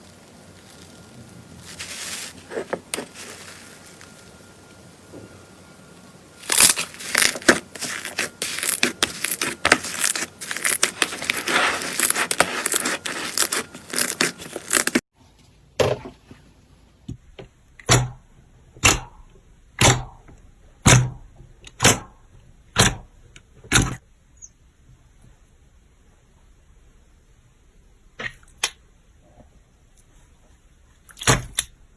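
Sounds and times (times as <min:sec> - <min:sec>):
slime crackling and popping: 0:00.0 - 0:05.0, 0:06.4 - 0:15.0.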